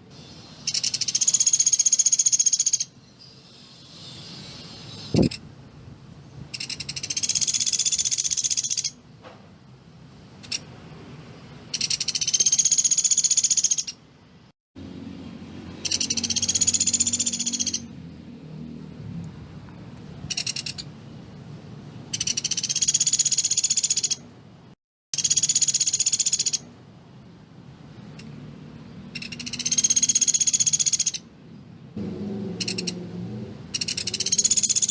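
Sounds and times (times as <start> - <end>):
woodpecker rattling trills: 0.6 - 2.9, 6.5 - 9.0, 11.7 - 14.0, 15.8 - 17.9, 20.3 - 20.9, 22.1 - 24.2, 25.2 - 26.6, 29.1 - 31.2, 32.6 - 33.0, 33.7 - 34.9.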